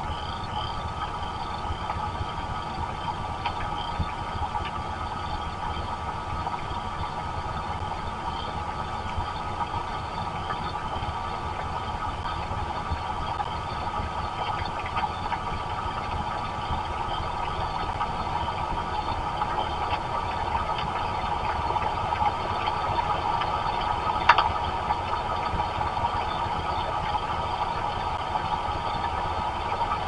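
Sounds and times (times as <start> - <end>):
steady rain hiss: 0.0 - 30.0
sharp tick: 24.2 - 24.5.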